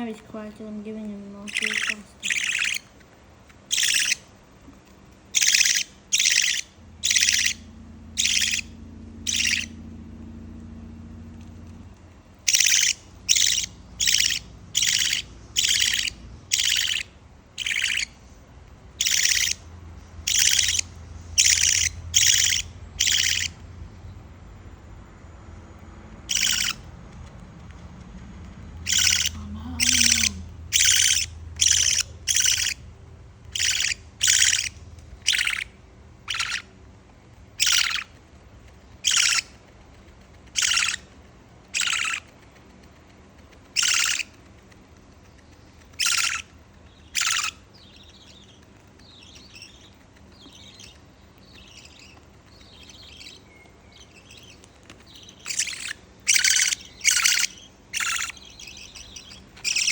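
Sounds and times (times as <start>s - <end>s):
soft bird chirping: 0.0s - 59.9s
bird chick begging squawks: 1.3s - 3.0s, 3.7s - 4.3s, 5.3s - 10.0s, 12.4s - 23.6s, 26.2s - 26.9s, 28.7s - 36.8s, 37.5s - 38.2s, 39.0s - 39.6s, 40.5s - 42.3s, 43.7s - 44.4s, 45.9s - 59.9s.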